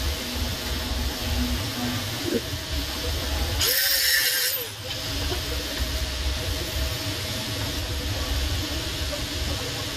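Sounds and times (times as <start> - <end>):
welding arc hissing: 0.0 - 9.9.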